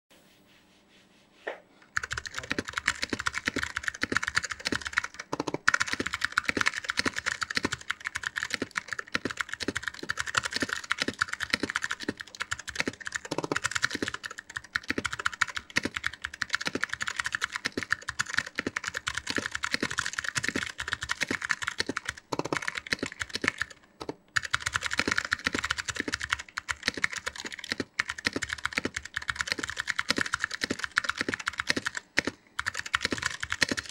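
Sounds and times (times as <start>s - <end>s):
mechanical keyboard typing clicks: 2.0s - 33.9s.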